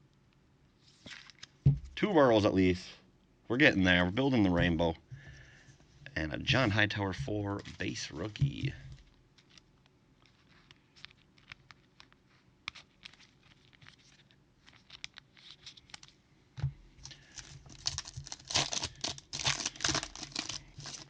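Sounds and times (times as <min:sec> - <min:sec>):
trading cards being handled: 0:06.5 - 0:16.2, 0:17.0 - 0:21.0
card pack wrapper crinkling: 0:09.4 - 0:16.2, 0:17.0 - 0:21.0.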